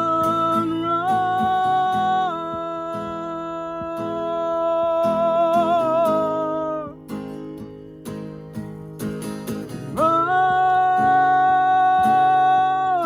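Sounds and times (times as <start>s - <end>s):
man singing a high note: 0.0s - 7.0s, 10.0s - 13.0s
strummed acoustic guitar: 0.0s - 13.0s.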